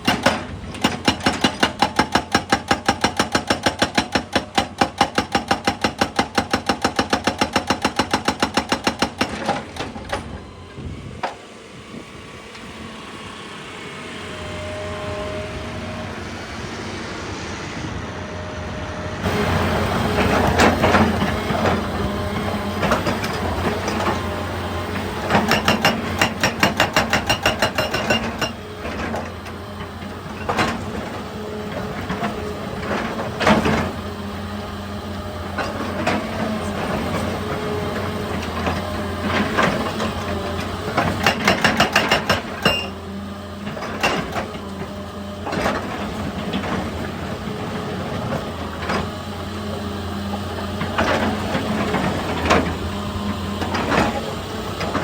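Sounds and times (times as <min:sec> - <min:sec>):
hydraulic breaker hammering rock: 0:00.0 - 0:10.5, 0:19.2 - 0:34.2, 0:35.4 - 0:49.1, 0:50.4 - 0:55.0
diesel engine running: 0:00.0 - 0:55.0.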